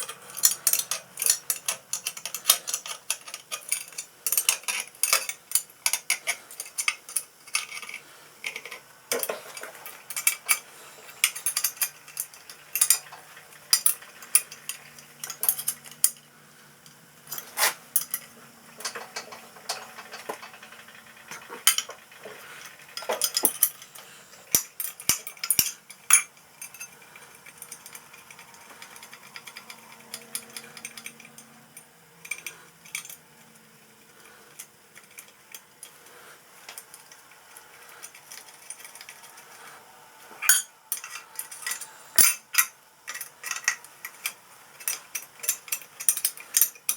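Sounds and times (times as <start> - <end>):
metal tools clinking: 0.0 - 16.2, 21.3 - 33.2, 37.8 - 39.7, 40.4 - 46.9.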